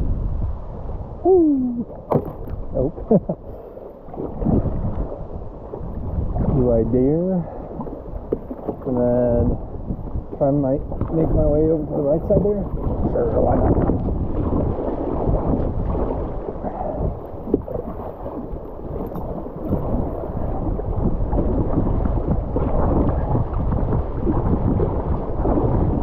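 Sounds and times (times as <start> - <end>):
wind on microphone: 0.0 - 26.0
river water rushing and splashing: 10.3 - 26.0.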